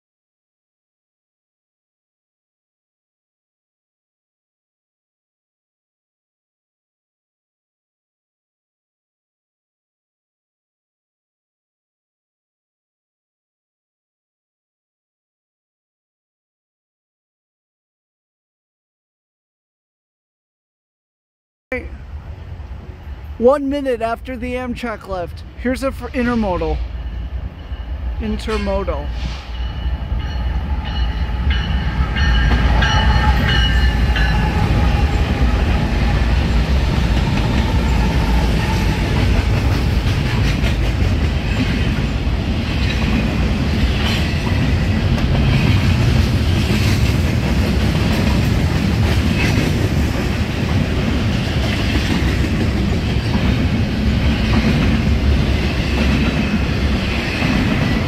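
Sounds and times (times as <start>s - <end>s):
rail cars clattering over track: 25.8s - 58.0s
diesel locomotive rumble: 29.1s - 58.0s.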